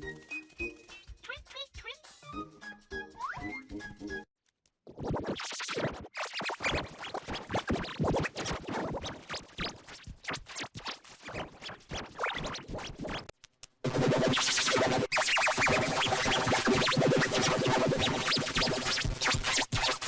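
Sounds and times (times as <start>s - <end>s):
stuttering chopped cartoon soundtrack: 4.9s - 13.3s, 13.9s - 20.0s.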